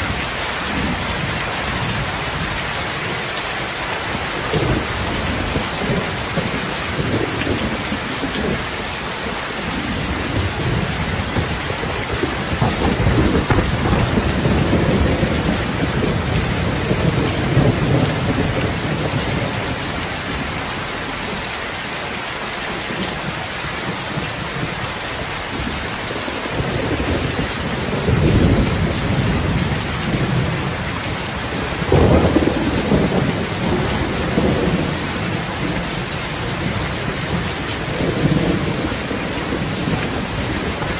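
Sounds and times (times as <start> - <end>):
heavy rain: 0.0 - 40.9
thunder rolling: 9.6 - 20.5, 26.5 - 40.9.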